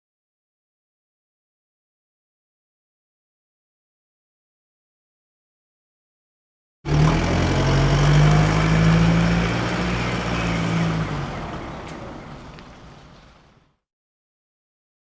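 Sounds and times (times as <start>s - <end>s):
vehicle engine running: 6.9s - 13.7s.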